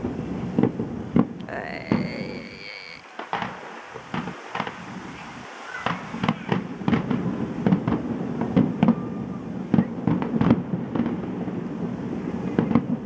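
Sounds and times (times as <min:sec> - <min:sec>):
fireworks bursting: 0:00.0 - 0:09.0.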